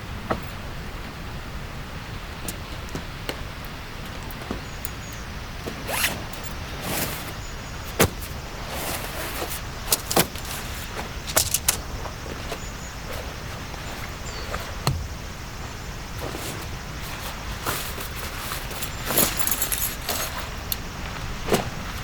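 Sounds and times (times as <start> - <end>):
zipper pulled: 5.9 - 6.2, 17.6 - 20.4
gear clicks and knocks: 7.9 - 11.9, 17.2 - 20.8.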